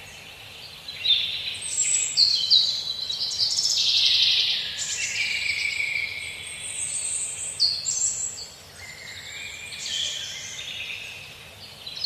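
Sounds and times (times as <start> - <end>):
faint steady background noise: 0.0 - 12.0.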